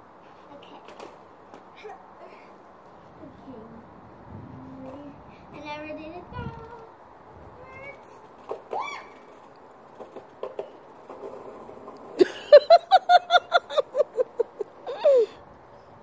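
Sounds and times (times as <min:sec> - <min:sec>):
child falling cry: 0:08.7 - 0:09.3
child giggling: 0:12.2 - 0:15.4.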